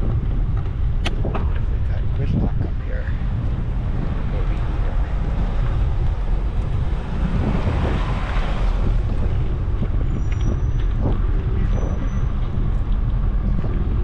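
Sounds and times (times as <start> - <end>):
wind buffeting microphone: 0.0 - 14.0
car passing: 2.8 - 14.0.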